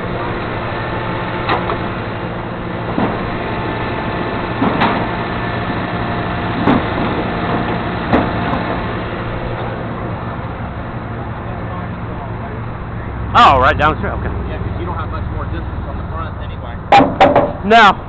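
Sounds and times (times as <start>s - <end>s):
engine idling: 0.0s - 18.0s
sharp knocks and clanks: 1.4s - 1.9s, 2.9s - 3.3s, 4.6s - 5.8s, 6.6s - 8.8s, 16.9s - 17.9s.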